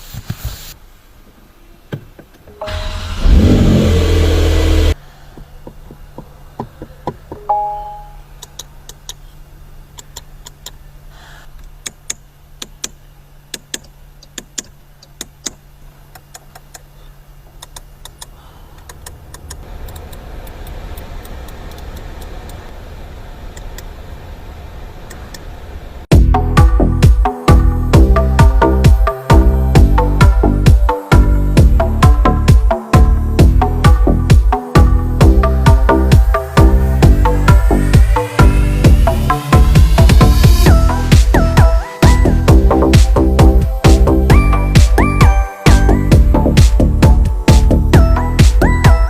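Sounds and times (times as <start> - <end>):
car engine starting and idling: 2.5 - 7.4, 18.8 - 26.1, 34.0 - 45.2
three-note chime: 7.4 - 8.2
clicks: 8.4 - 9.2, 17.5 - 22.6.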